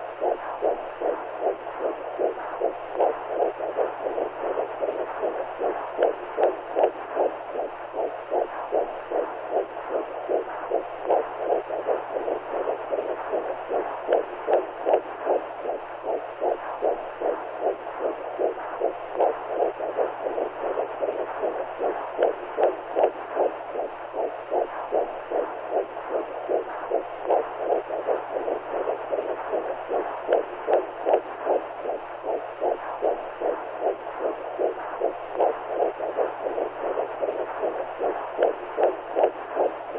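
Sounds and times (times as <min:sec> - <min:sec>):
faint low hum: 0:00.0 - 0:39.9
muffled heartbeat: 0:00.0 - 0:39.9.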